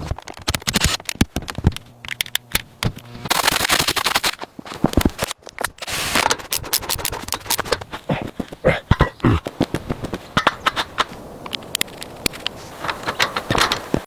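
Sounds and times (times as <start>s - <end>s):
sharp knocks taps and scrapes: 9.4s - 14.0s.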